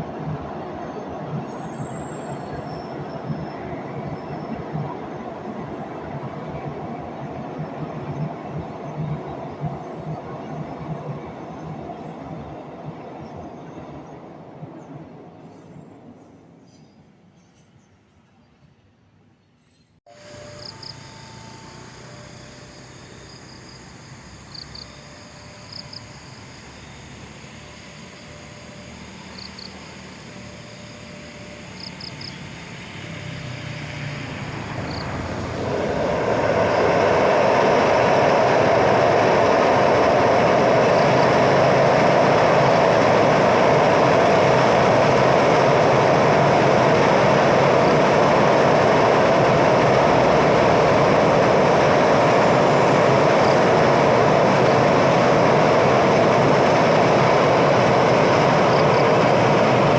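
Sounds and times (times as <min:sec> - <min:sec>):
train wheels rumbling on rails: 0:00.0 - 0:18.5, 0:25.5 - 0:59.9.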